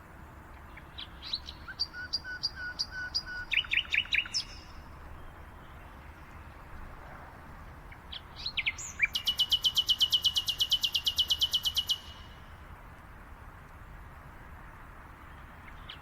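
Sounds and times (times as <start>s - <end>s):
faint background hiss: 0.0s - 16.0s
songbirds chirping: 0.0s - 16.0s.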